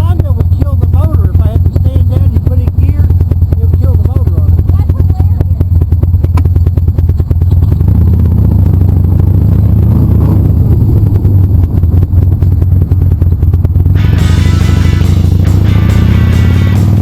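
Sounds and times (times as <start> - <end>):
motorcycle engine rumble: 0.0 - 17.0
music: 14.0 - 17.0.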